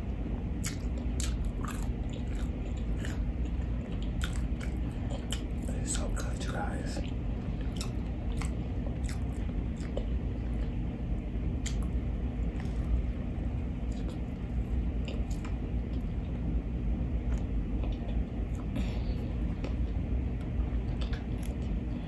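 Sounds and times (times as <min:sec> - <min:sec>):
steady low rumble: 0:00.0 - 0:22.0
wet chewing mouth sounds: 0:00.6 - 0:10.8, 0:11.6 - 0:13.1, 0:13.8 - 0:16.2, 0:19.5 - 0:21.8.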